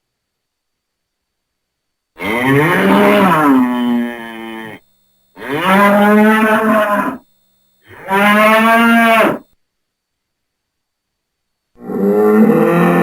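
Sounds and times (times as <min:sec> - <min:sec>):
bull mooing: 0:02.2 - 0:04.8, 0:05.4 - 0:07.2, 0:07.9 - 0:09.5, 0:11.8 - 0:13.0.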